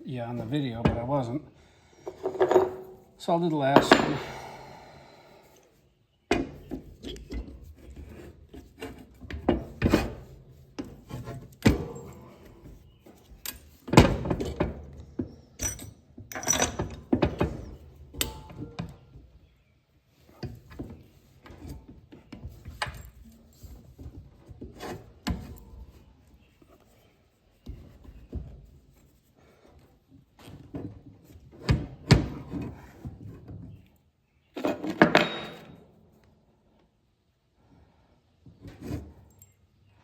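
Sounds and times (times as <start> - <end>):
metal pieces clinking and knocking: 2.0 - 3.0, 15.6 - 17.0, 34.8 - 35.8.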